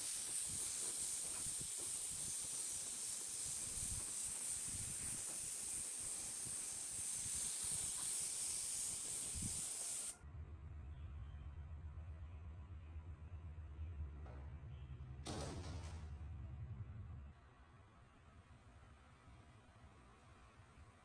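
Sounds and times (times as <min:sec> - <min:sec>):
pressurised air hissing: 0:00.0 - 0:10.2.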